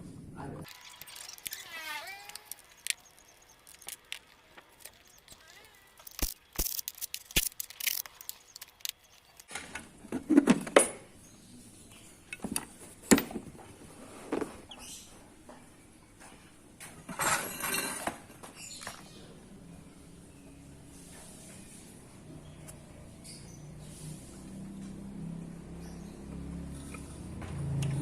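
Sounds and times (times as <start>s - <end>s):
falling chirps: 0.7s - 9.5s.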